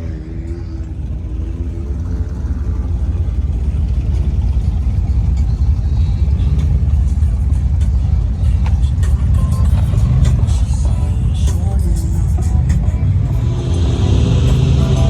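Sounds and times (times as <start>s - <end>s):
deep vehicle rumble: 0.0s - 15.0s.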